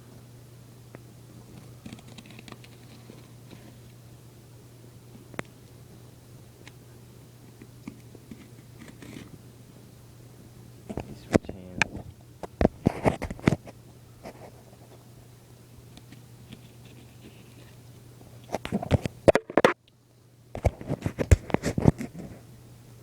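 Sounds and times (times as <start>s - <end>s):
cardboard box scratching and crackling: 1.5s - 3.9s, 8.3s - 9.3s.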